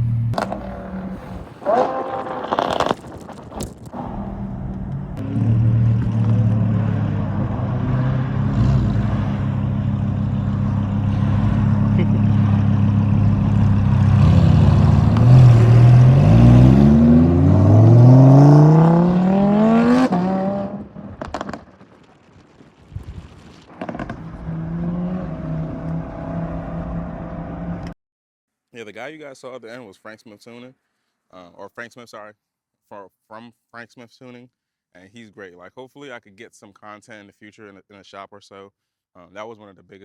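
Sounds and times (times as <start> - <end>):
car engine revving and accelerating: 0.0 - 3.0, 4.0 - 21.6, 23.9 - 27.9.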